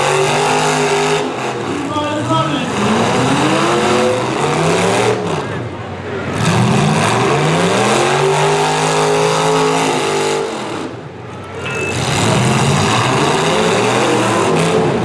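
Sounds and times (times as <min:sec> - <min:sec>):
car engines revving hard: 0:00.0 - 0:15.0.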